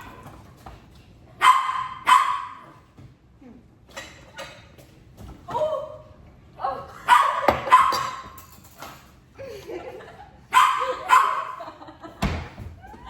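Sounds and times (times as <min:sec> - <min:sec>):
dog barking: 0:01.4 - 0:02.8, 0:07.0 - 0:08.2, 0:10.5 - 0:11.6.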